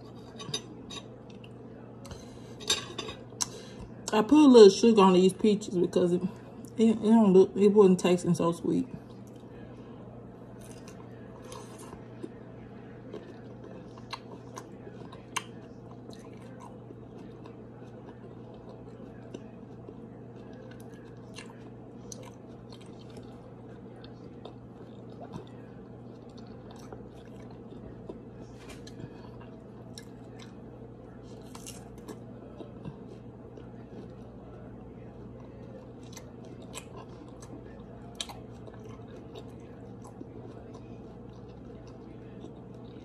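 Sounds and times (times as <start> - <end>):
chewing fruit: 10.4 - 43.0.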